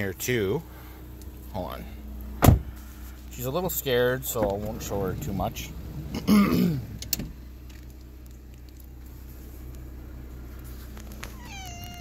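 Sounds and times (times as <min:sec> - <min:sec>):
car engine idling: 0:00.0 - 0:12.0
cat meowing: 0:11.3 - 0:12.0.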